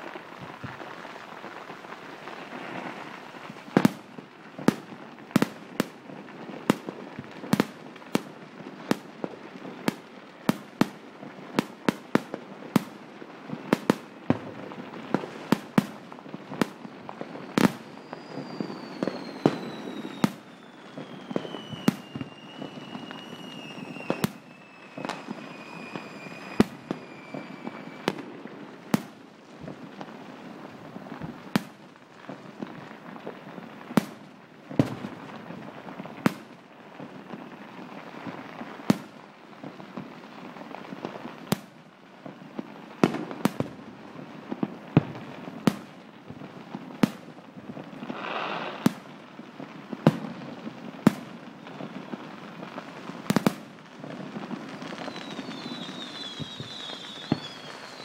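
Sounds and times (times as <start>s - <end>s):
crackling hiss of firecrackers: 0.0s - 58.0s
fireworks bangs: 0.0s - 58.0s
high falling firework whistle: 17.2s - 28.4s, 48.1s - 49.0s, 54.6s - 58.0s.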